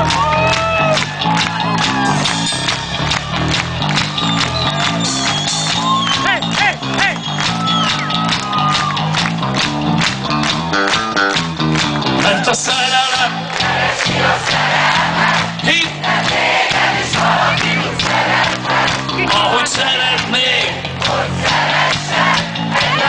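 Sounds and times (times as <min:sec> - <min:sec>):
live rock band playing: 0:00.0 - 0:23.0
crowd singing and shouting: 0:12.2 - 0:23.0.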